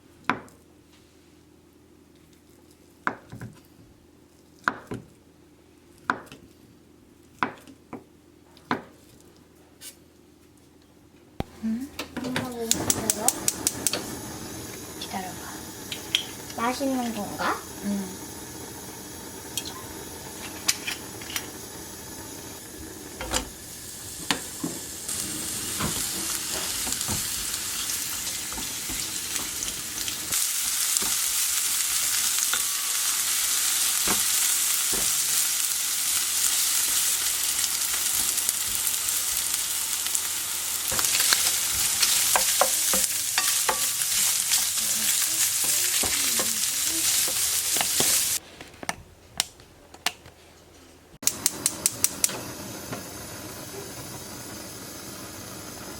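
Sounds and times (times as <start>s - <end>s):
food sizzling in a frying pan: 12.2s - 48.4s, 51.3s - 55.9s.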